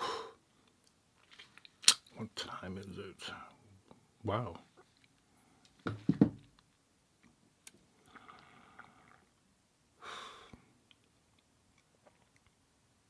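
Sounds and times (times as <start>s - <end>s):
man breathing and sniffing: 0.0s - 0.6s.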